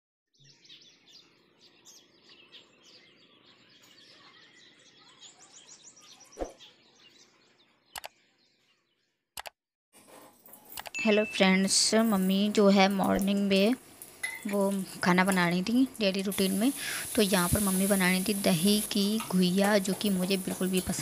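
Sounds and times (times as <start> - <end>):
small birds chirping: 0.4 - 9.4, 11.0 - 21.0
short clicks: 9.4 - 9.6.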